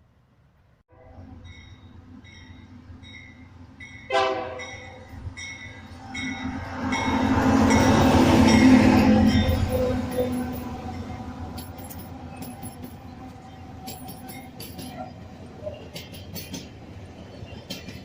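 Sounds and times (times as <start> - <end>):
train passing rumble: 0.0 - 18.0
train horn blast: 0.9 - 1.3, 4.1 - 5.1.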